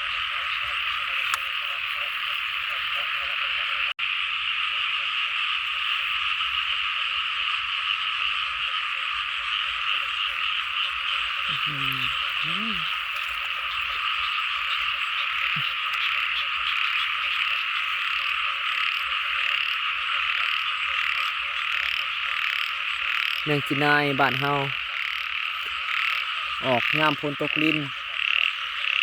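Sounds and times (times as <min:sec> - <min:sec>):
chorus of frogs calling: 0:00.0 - 0:29.0
low pitch-bending calls: 0:10.2 - 0:16.2.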